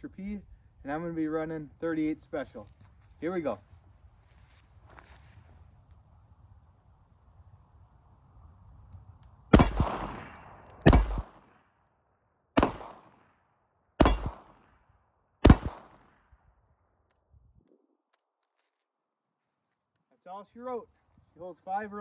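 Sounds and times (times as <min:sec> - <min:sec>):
revolver shots: 0:09.6 - 0:11.3, 0:14.0 - 0:14.5.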